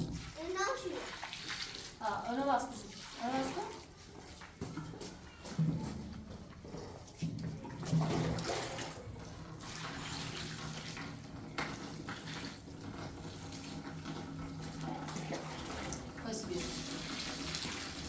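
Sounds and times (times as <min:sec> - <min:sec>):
water running from a tap: 0:00.0 - 0:04.0, 0:09.6 - 0:18.0.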